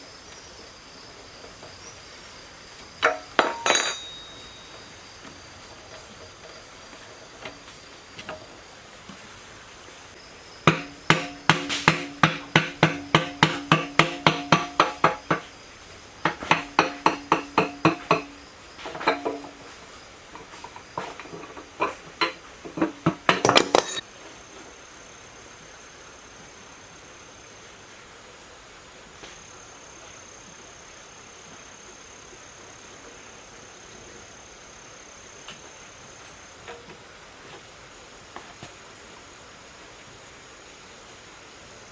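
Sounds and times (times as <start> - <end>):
hammer striking ringing metal: 3.0 - 5.0, 10.7 - 15.4, 23.3 - 24.0.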